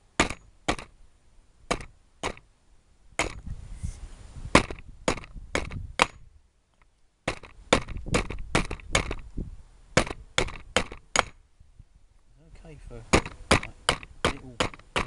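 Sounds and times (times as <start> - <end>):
hatchet chopping wood: 0.2 - 0.9, 1.7 - 2.4, 3.2 - 3.4, 4.6 - 6.2, 7.3 - 9.2, 10.0 - 11.4, 13.1 - 15.0.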